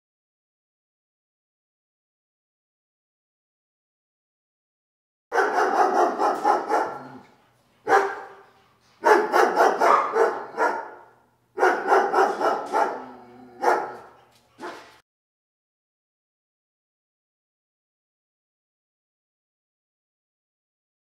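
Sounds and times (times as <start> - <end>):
puppies barking: 5.3 - 15.0.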